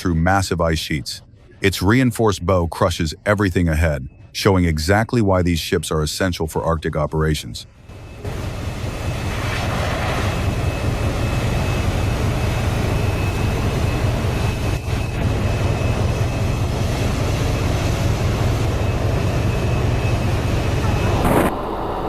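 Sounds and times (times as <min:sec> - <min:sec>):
ship engines and ice rumbling: 0:07.7 - 0:22.0
noisy water wash: 0:08.2 - 0:22.0.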